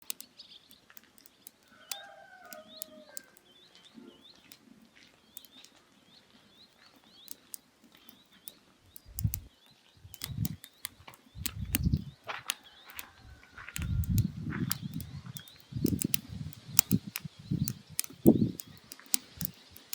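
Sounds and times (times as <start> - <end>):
bird chirping: 0.0 - 19.9
firewood crackling and popping: 0.0 - 19.9
dull low thumps: 9.0 - 10.6, 11.3 - 12.4, 13.7 - 18.6.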